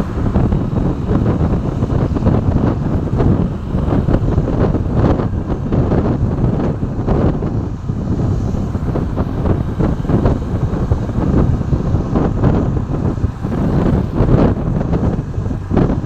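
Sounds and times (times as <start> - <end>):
low rumble of road noise: 0.0 - 16.0
wind buffeting microphone: 0.0 - 16.0.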